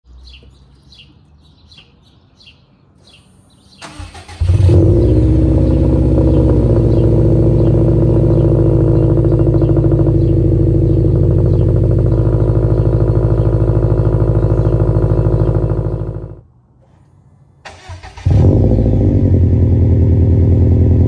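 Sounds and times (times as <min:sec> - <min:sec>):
birds chirping: 0:00.1 - 0:16.4
car engine starter cranking: 0:03.8 - 0:04.9, 0:17.7 - 0:18.5
car engine idling loudly: 0:04.6 - 0:16.4.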